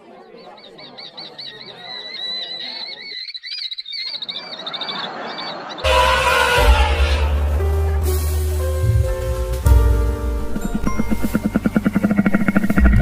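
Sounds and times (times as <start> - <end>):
animal chirping calls: 0.3 - 7.3
loud music: 5.9 - 13.0.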